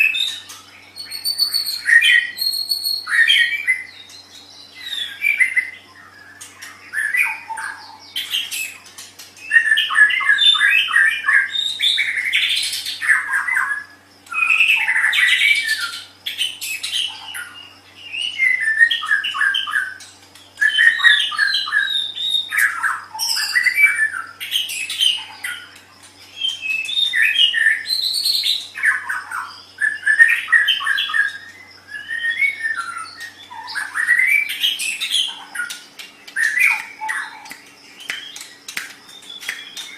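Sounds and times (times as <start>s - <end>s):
bird singing with fast trills: 0.0s - 39.9s.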